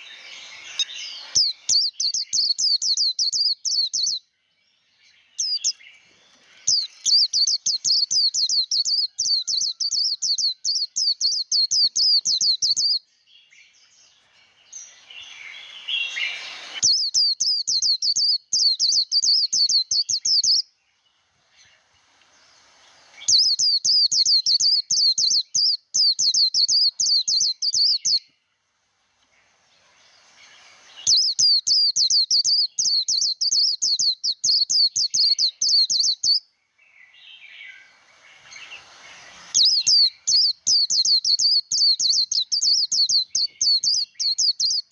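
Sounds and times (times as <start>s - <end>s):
soft rushing noise: 0.0s - 1.7s, 14.2s - 16.8s, 21.0s - 23.6s, 28.7s - 31.2s, 37.2s - 40.4s
bird warbling chirps: 0.0s - 4.2s, 5.3s - 13.0s, 14.1s - 28.3s, 29.4s - 44.9s.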